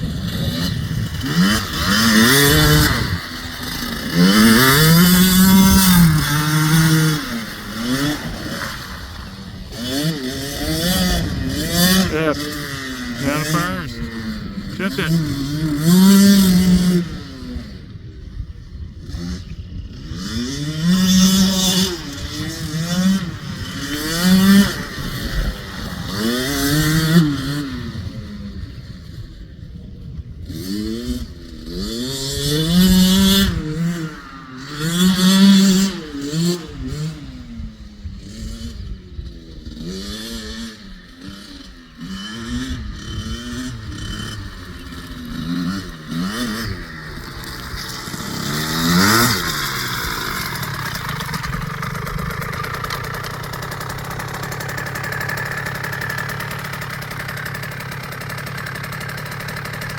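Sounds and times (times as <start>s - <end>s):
dirt bike engine revving: 39.8s - 58.2s.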